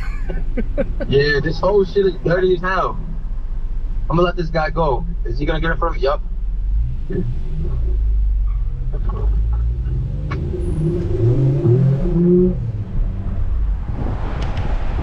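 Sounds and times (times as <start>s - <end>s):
car engines rumbling: 0.0s - 15.0s
engine revving: 0.0s - 15.0s
car passing by: 13.0s - 15.0s.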